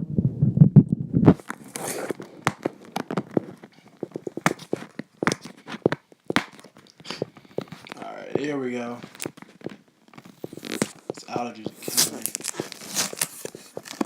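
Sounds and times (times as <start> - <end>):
microphone handling rumble: 0.0 - 1.6
packaging clicking and crinkling: 1.4 - 14.0.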